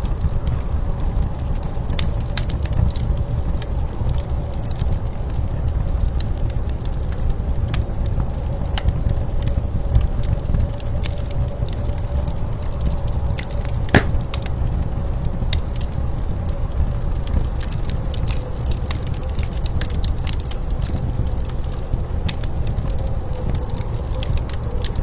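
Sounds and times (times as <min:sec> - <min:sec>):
wood fire crackling: 0:13.9 - 0:14.5.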